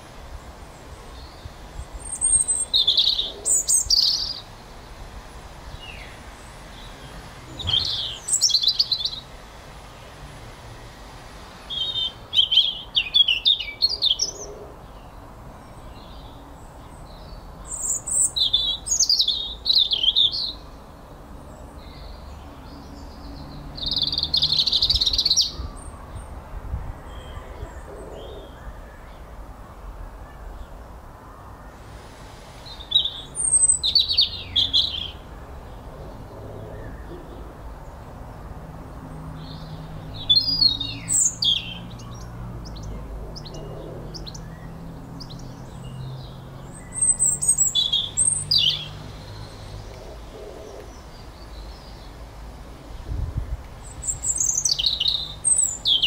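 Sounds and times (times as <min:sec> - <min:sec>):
faint low background noise: 0:00.0 - 0:56.0
small birds chirping: 0:00.0 - 0:56.0.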